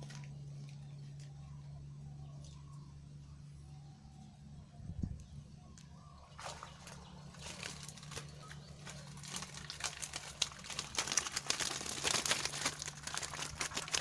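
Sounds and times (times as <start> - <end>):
bag rustling and crinkling: 7.2 - 14.0.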